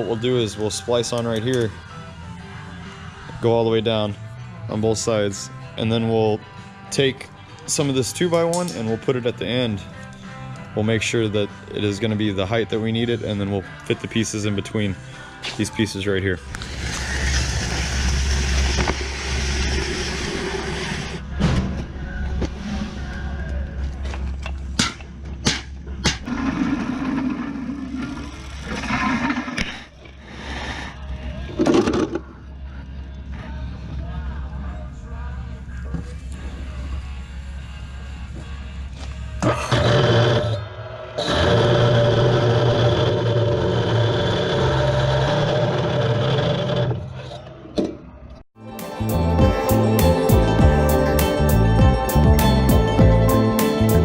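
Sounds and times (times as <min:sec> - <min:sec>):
power saw cutting steel tubing: 0:16.5 - 0:21.2, 0:39.4 - 0:47.2.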